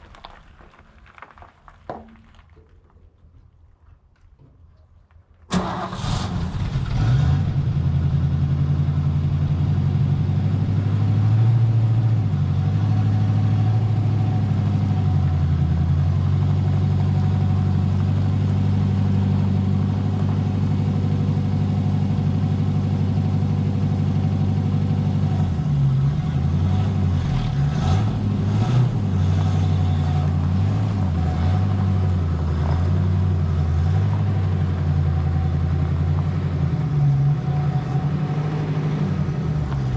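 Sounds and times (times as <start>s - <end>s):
car engine starting and idling: 5.5s - 39.9s.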